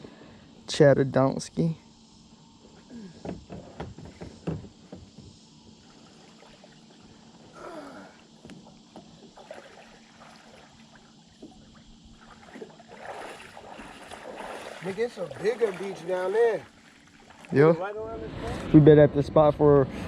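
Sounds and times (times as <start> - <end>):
soft wash of water: 5.6 - 7.5, 8.1 - 18.8.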